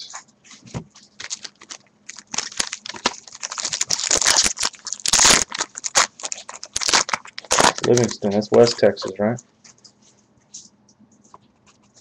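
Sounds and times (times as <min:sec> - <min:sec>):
cards and wrappers being handled: 0:00.5 - 0:09.1.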